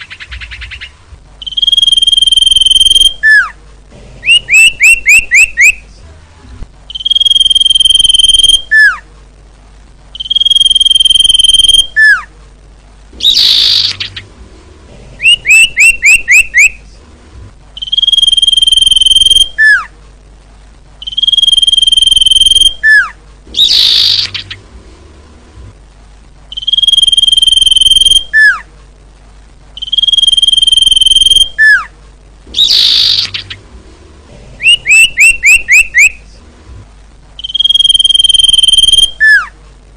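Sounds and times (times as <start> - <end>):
bird long whistles: 1.4 - 3.6, 4.3 - 5.8, 6.9 - 9.0, 10.2 - 12.3, 13.2 - 14.2, 15.2 - 16.8, 17.8 - 19.9, 21.0 - 24.5, 26.5 - 28.6, 29.8 - 31.9, 32.6 - 33.6, 34.6 - 36.2, 37.4 - 39.5.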